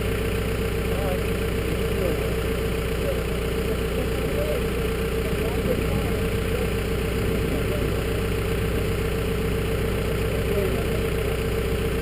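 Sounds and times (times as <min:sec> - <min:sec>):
engine idling: 0:00.0 - 0:12.0
steady mid-pitched tone: 0:05.2 - 0:11.4.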